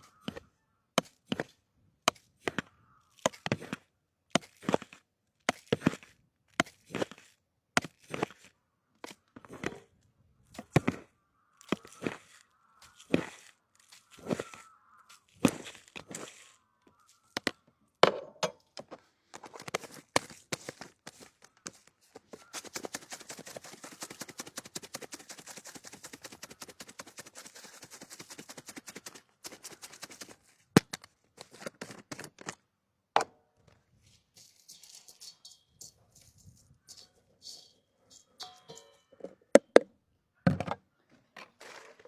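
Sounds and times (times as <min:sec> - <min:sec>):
rapid scraping and clicking: 0:19.6 - 0:30.5, 0:34.4 - 0:38.7.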